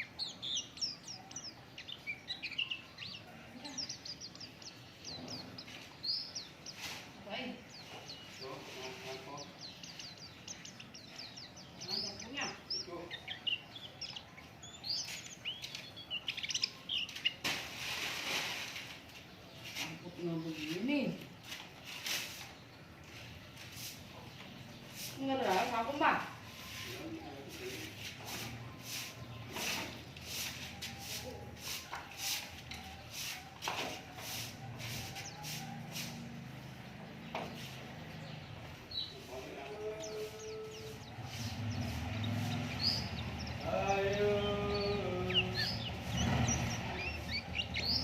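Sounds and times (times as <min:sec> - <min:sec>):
small birds chirping: 0:00.0 - 0:48.0
rustling hiss: 0:05.6 - 0:07.6, 0:16.4 - 0:20.0, 0:39.7 - 0:48.0.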